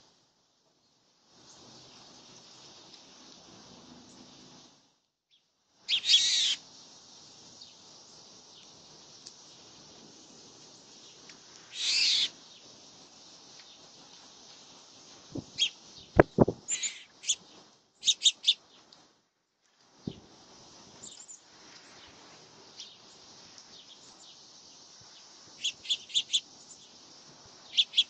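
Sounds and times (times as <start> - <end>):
harsh high bird calls: 5.9 - 6.6, 11.7 - 12.4, 15.6 - 18.6, 25.6 - 26.7, 27.7 - 28.0
short high bird chips: 5.9 - 6.6, 11.7 - 12.3, 15.6 - 17.4.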